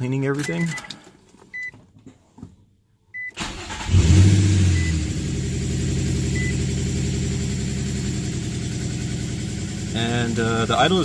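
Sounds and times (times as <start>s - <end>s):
car engine starting and idling: 3.2s - 11.0s.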